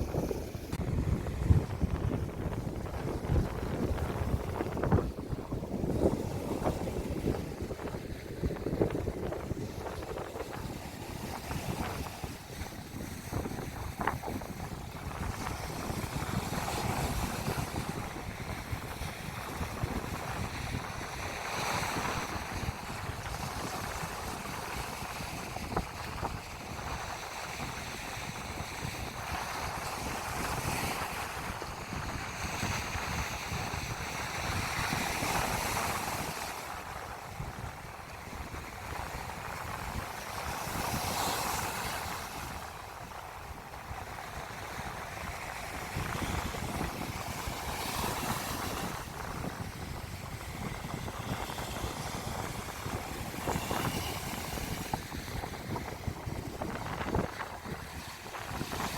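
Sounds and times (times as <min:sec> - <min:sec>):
sea waves breaking on beach: 0:00.0 - 0:58.9
wind buffeting microphone: 0:00.0 - 0:58.9.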